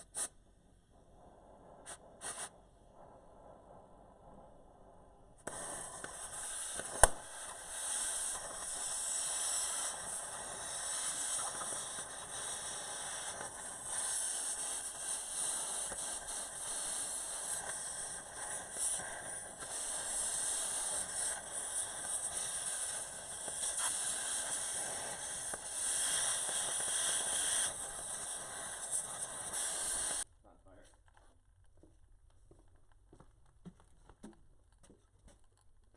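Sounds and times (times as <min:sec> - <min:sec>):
cutting torch hissing: 0:00.0 - 0:00.4, 0:01.1 - 0:04.4, 0:05.3 - 0:30.3.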